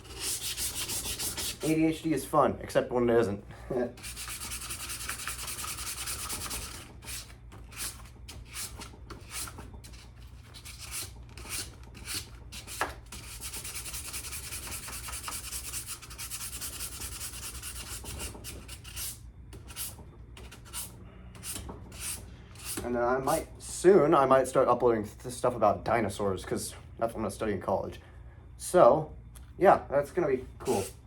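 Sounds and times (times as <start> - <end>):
sandpaper rubbing on metal: 0.0 - 1.8, 4.0 - 22.8, 30.6 - 31.0.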